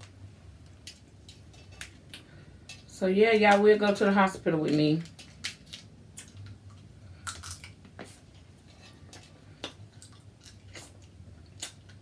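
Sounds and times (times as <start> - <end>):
low steady hum: 0.0 - 12.0
chewing: 5.1 - 12.0.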